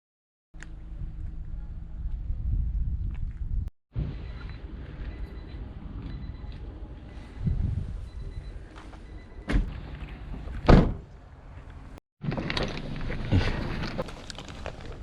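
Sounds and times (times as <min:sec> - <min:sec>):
wind buffeting microphone: 0:00.9 - 0:03.7, 0:07.2 - 0:08.7.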